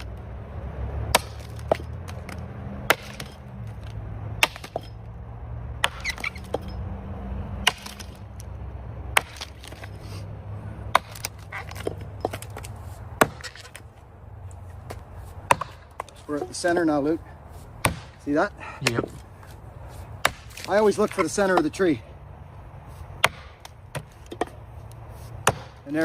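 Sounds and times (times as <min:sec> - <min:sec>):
axe chopping tree trunk: 0:00.0 - 0:00.2, 0:01.0 - 0:05.0, 0:05.8 - 0:06.8, 0:07.6 - 0:08.5, 0:09.1 - 0:10.2, 0:10.8 - 0:13.9, 0:14.8 - 0:16.9, 0:17.8 - 0:19.2, 0:20.2 - 0:22.0, 0:23.2 - 0:24.6, 0:25.2 - 0:26.0.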